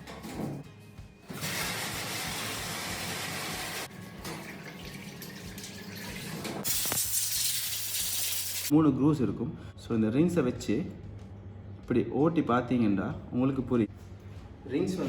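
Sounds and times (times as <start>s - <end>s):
liquid running and splashing from tap: 1.4s - 8.7s.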